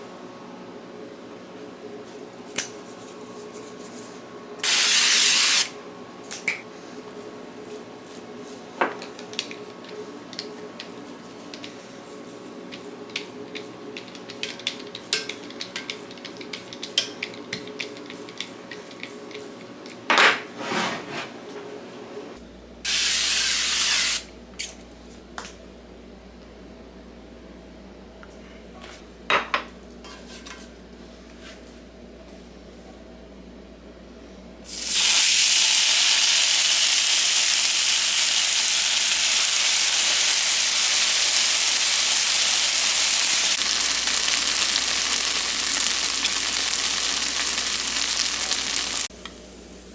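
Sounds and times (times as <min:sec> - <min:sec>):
spray can hissing: 0:04.6 - 0:05.7, 0:34.8 - 0:49.1.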